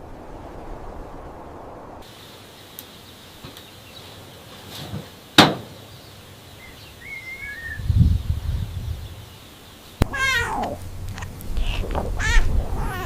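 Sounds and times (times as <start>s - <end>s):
faint bird chirps: 5.8s - 10.6s.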